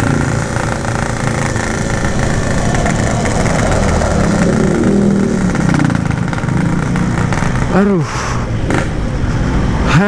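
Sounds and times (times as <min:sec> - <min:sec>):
two-stroke motorcycle engine running: 0:00.0 - 0:08.0.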